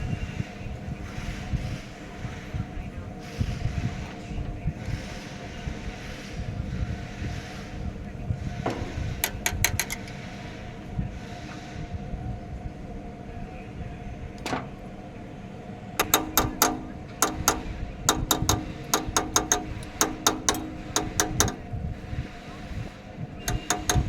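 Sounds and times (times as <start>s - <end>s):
steady low hum: 0.0s - 24.0s
metallic clicking of hand tool: 9.2s - 10.2s, 16.0s - 21.7s, 23.4s - 24.0s.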